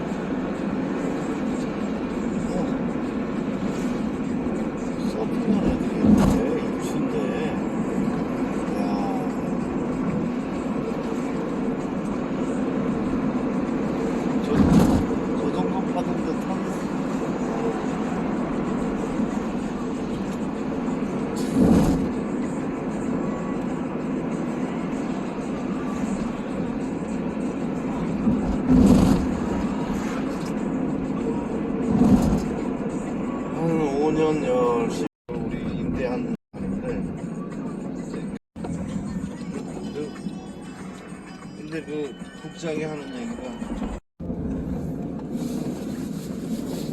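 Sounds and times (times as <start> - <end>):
car driving rumble: 0.0 - 41.2, 43.6 - 46.9
low rumbles: 26.2 - 33.0.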